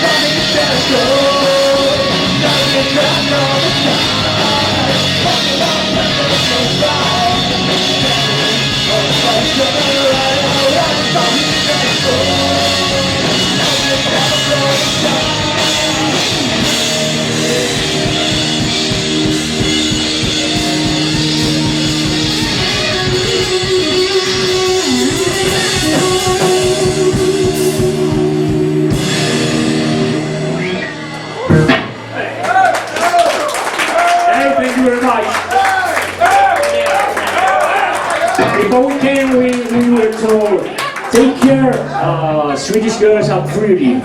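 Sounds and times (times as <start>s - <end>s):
person singing: 0.0s - 18.9s, 20.2s - 31.7s
live rock band playing: 0.0s - 32.9s, 34.7s - 44.0s.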